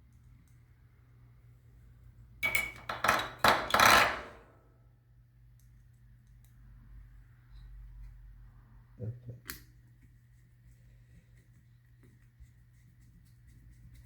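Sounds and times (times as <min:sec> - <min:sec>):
objects clattering on workbench: 0:02.4 - 0:04.4.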